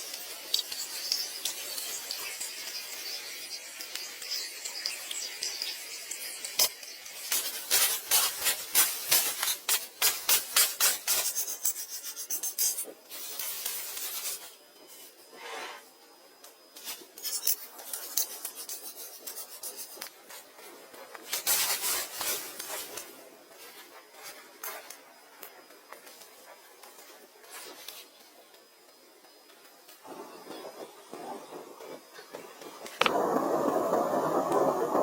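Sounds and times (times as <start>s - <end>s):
hand scraping and rubbing: 7.4s - 15.9s, 16.8s - 20.6s.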